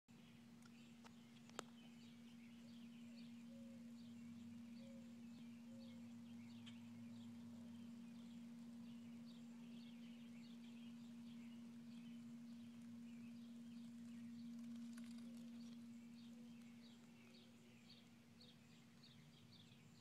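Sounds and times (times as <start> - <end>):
small birds chirping: 0.1 - 20.0
steady low hum: 0.1 - 20.0.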